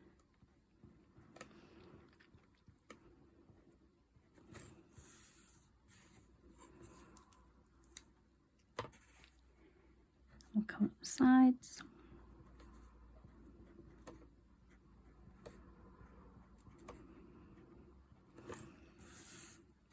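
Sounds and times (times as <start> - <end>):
pen tapping and scratching: 12.6 - 15.7.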